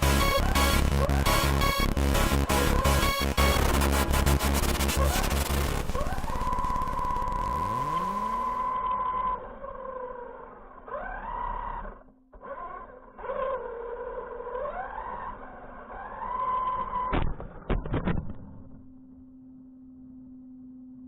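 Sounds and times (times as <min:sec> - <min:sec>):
electric motor whine: 0:00.0 - 0:10.3.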